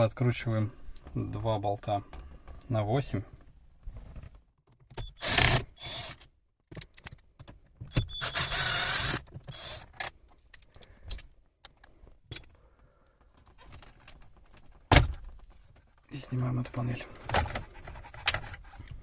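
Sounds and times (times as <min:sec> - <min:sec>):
small power tool whirring: 0:05.1 - 0:06.2, 0:08.0 - 0:09.9.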